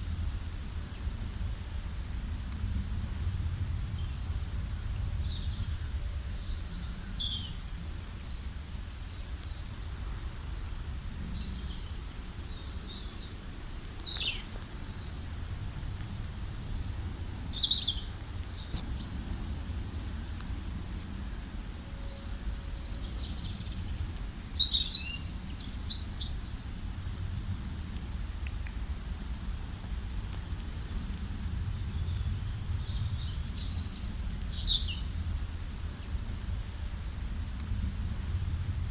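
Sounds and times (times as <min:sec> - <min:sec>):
steady low rumble: 0:00.0 - 0:08.0, 0:18.2 - 0:24.6, 0:26.8 - 0:38.9.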